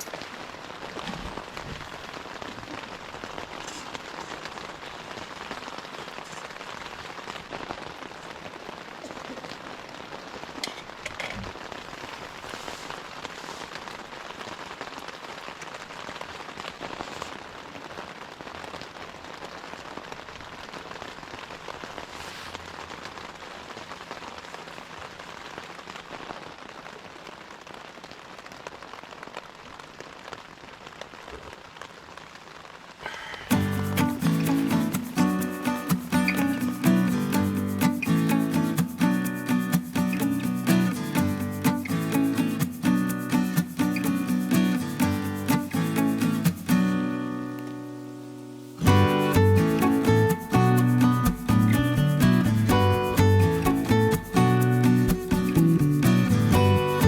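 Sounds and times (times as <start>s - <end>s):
gentle rain hiss: 0.0s - 57.0s
raindrop ticks: 33.3s - 47.9s, 48.8s - 57.0s.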